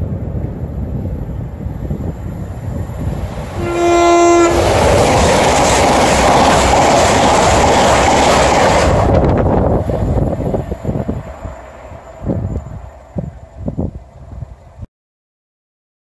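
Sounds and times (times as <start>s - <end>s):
train rushing past: 0.0s - 14.8s
train horn: 3.5s - 5.0s.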